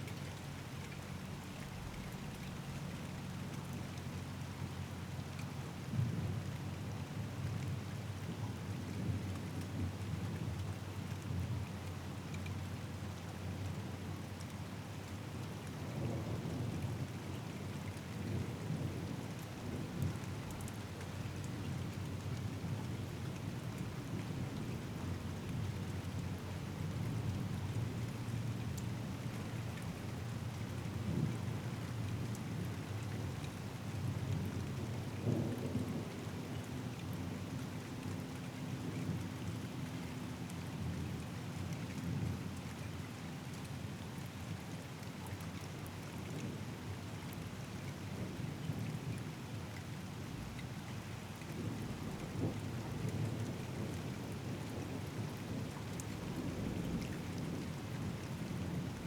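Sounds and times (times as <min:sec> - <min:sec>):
steady rain: 0:00.0 - 0:59.0
low rolling thunder: 0:51.6 - 0:59.0.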